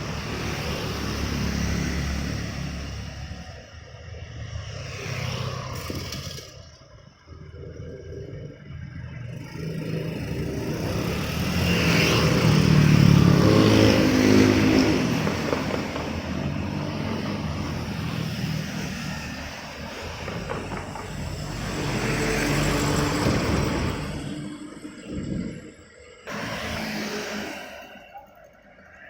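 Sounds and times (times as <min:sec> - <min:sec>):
vehicle approaching: 0:00.0 - 0:28.0
vehicle passing: 0:09.3 - 0:25.6.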